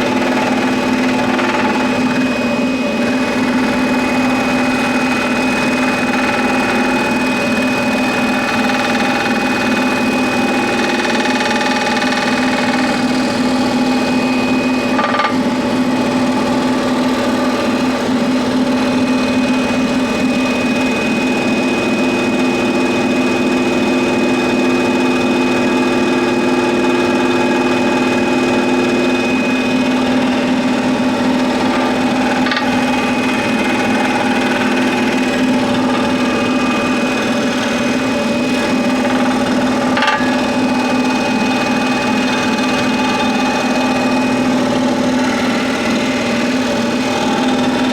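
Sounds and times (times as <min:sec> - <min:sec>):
scroll saw cutting wood: 0:00.0 - 0:47.9.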